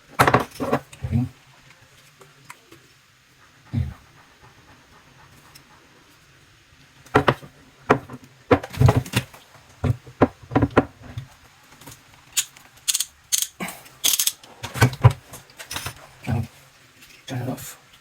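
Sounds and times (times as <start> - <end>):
tools clicking and knocking: 12.4 - 15.0.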